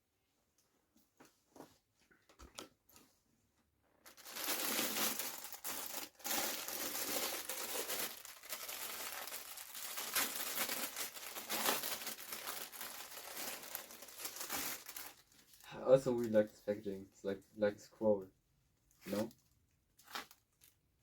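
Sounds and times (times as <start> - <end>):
crinkly packaging being unwrapped: 4.0 - 16.6, 19.0 - 21.0.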